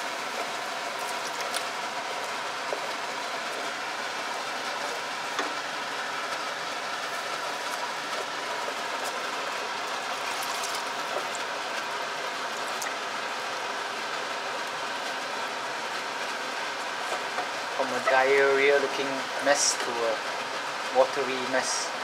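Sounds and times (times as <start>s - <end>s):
wooden spoon stirring: 0.0s - 13.1s
spice paste sizzling in a pot: 0.0s - 21.8s
water pouring onto hot paste: 0.0s - 21.8s.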